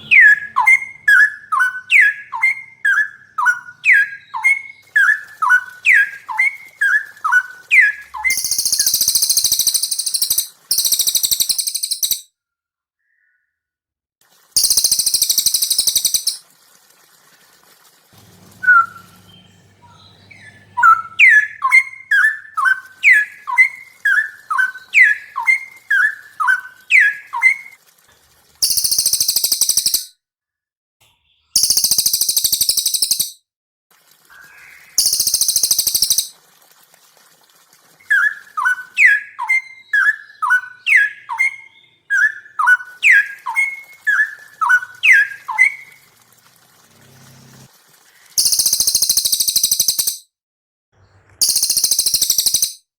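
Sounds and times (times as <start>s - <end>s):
bird whistling downward notes: 0.0s - 12.3s, 14.6s - 16.4s, 18.6s - 27.8s, 28.6s - 30.1s, 31.6s - 33.4s, 34.4s - 36.3s, 38.1s - 46.0s, 48.4s - 50.2s, 51.4s - 52.8s
shrill buzzy bird trill: 0.0s - 12.3s, 14.6s - 16.5s, 18.5s - 27.8s, 28.6s - 30.1s, 31.4s - 33.4s, 34.3s - 36.4s, 38.0s - 46.3s, 48.4s - 50.3s, 51.4s - 52.9s.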